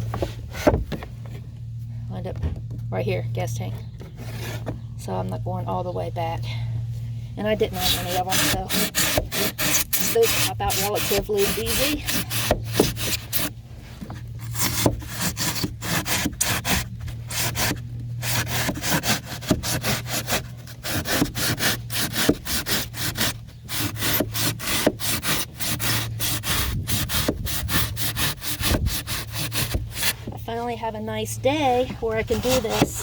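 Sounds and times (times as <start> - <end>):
blade sawing through foam: 7.4 - 13.5, 14.4 - 30.2, 32.2 - 33.0.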